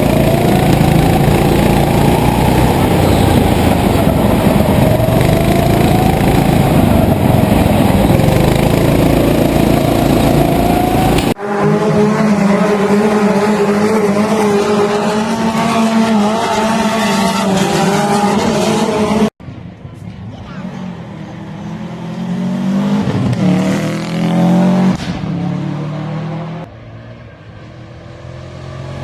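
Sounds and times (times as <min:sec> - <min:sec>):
engine with steady note: 0:00.0 - 0:19.6
racing engines roaring: 0:00.0 - 0:29.0.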